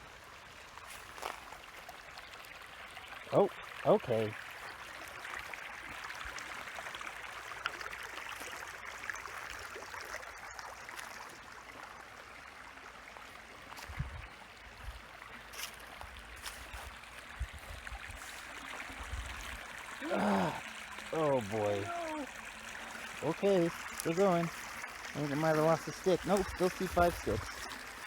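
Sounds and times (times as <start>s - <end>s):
stream trickling and gurgling: 0.0s - 28.0s.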